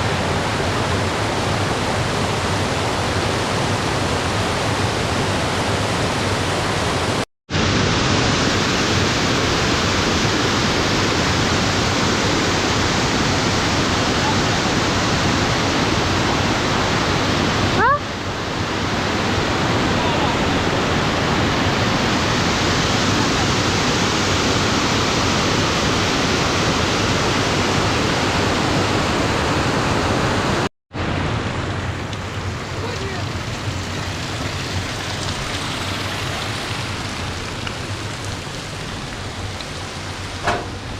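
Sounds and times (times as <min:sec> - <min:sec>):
fast-flowing water rushing: 0:00.0 - 0:40.9.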